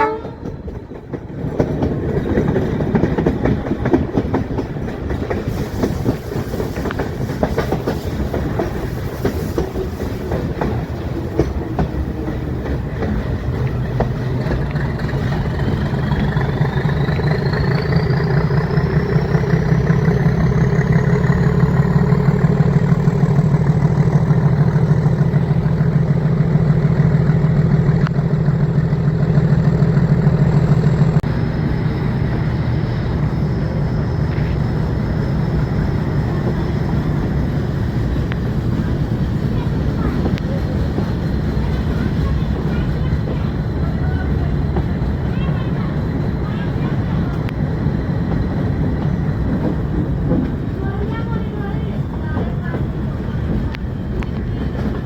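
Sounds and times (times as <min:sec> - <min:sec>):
diesel locomotive engine throb: 0:00.0 - 0:55.0
train wheels clattering: 0:00.0 - 0:55.0.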